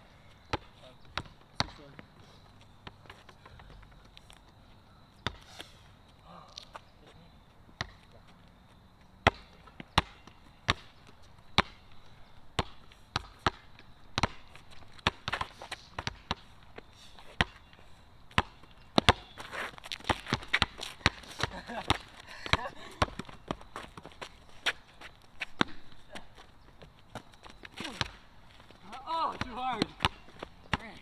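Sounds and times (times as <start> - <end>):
basketball bouncing on hard court: 0.5 - 2.0, 7.8 - 8.0, 9.2 - 11.8, 12.6 - 16.5, 17.3 - 17.6, 18.3 - 24.8, 28.9 - 31.0.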